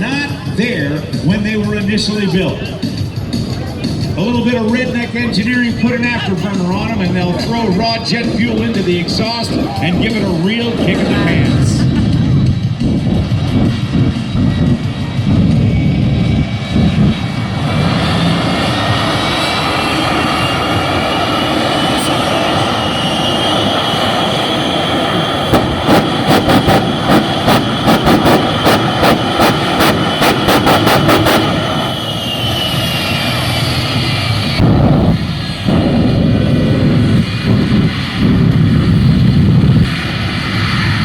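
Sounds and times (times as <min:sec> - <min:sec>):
jet engines roaring: 0:00.0 - 0:41.0
afterburner bangs: 0:16.7 - 0:40.3.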